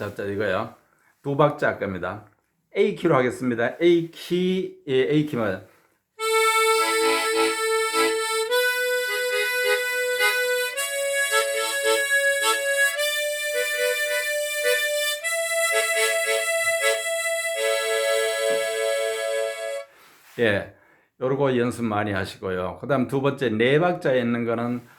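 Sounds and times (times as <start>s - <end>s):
harmonica playing: 6.2s - 20.0s.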